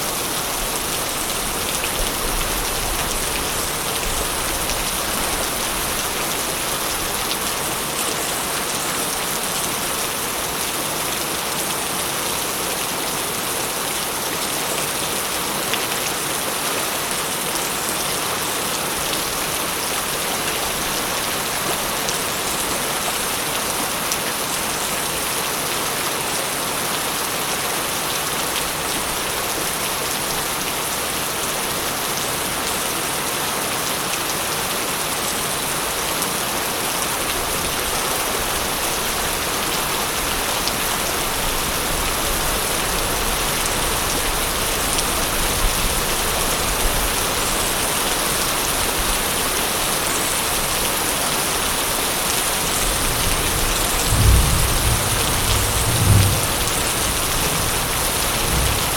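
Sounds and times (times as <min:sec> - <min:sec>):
dense rain falling: 0:00.0 - 0:58.9
distant thunder rumble: 0:53.1 - 0:58.9.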